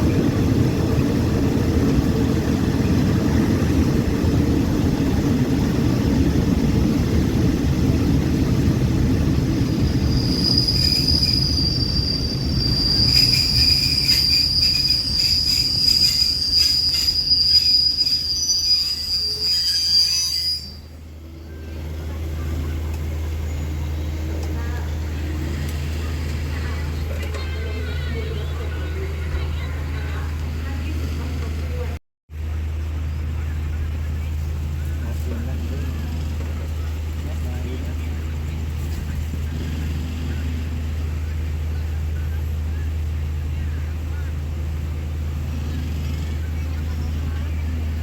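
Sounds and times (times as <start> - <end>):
train wheels rumbling: 0.0 - 48.0
high-pitched wheel squeal: 9.7 - 21.0.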